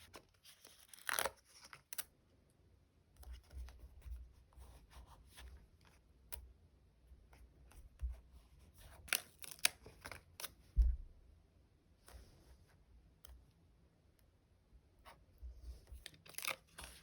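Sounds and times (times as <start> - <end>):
soft thump: 10.8 - 11.1.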